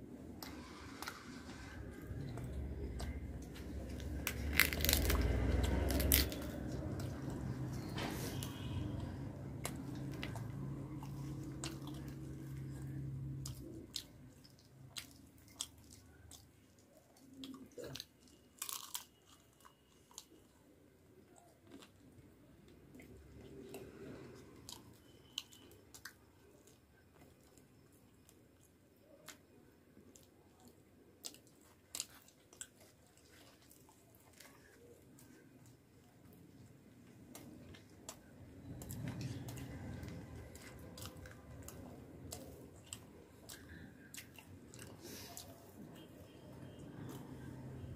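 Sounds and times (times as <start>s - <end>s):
low steady hum: 0.0s - 18.6s
close-miked chewing: 0.0s - 47.9s.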